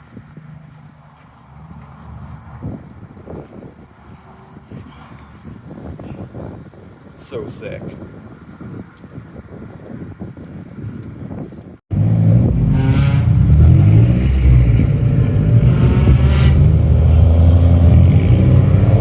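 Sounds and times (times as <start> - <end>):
traffic noise: 0.0 - 11.2, 11.9 - 19.0
wind: 0.0 - 19.0
car engine rumbling: 11.9 - 19.0.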